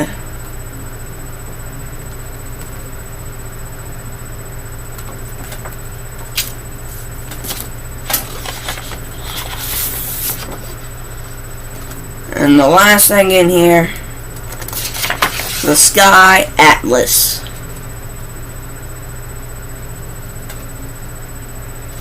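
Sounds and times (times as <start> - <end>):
steady low hum: 0.0 - 22.0
paper rustle: 6.3 - 12.0, 14.5 - 15.7.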